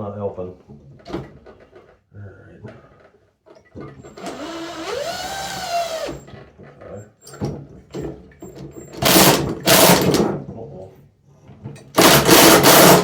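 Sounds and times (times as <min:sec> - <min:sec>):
power drill spinning: 0:04.0 - 0:06.4, 0:08.9 - 0:10.2, 0:12.0 - 0:13.0.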